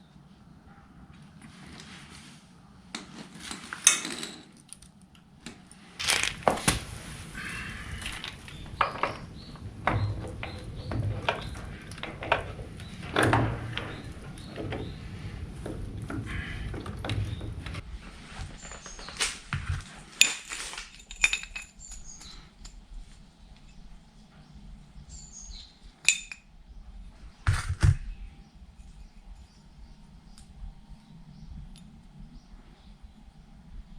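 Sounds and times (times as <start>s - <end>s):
metal objects clinking: 3.5s - 4.9s, 20.1s - 22.8s, 26.0s - 26.5s
low hum: 6.0s - 20.0s.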